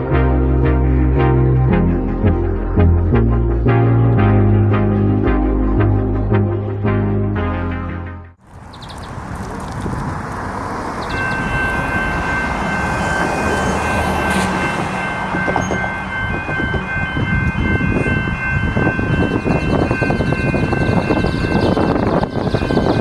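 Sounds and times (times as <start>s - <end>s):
electric train rumbling: 8.4s - 23.0s
high whine of train: 8.5s - 23.0s.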